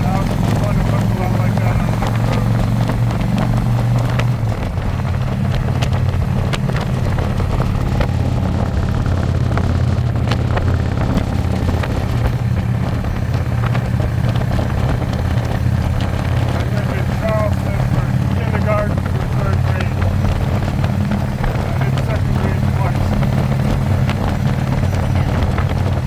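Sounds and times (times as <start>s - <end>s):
motorcycle engine cruising: 0.0s - 26.0s
wind buffeting microphone: 0.0s - 26.0s.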